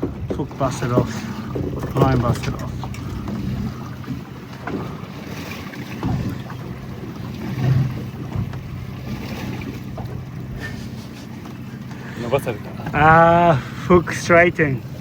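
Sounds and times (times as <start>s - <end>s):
boat engine humming: 0.0s - 15.0s
wind buffeting microphone: 0.0s - 15.0s
dull knocks: 5.9s - 10.7s.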